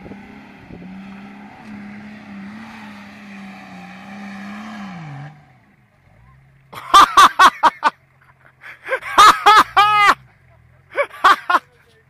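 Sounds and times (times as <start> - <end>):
car engine at high revs: 0.0 - 7.8.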